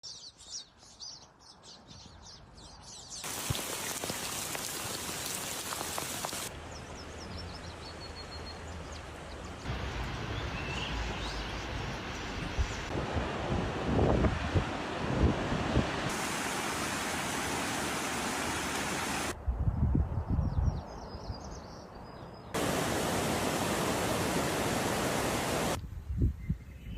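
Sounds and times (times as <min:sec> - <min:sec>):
birds chirping: 0:00.0 - 0:12.9
watery hiss: 0:03.2 - 0:06.5, 0:16.1 - 0:19.3, 0:22.6 - 0:25.8.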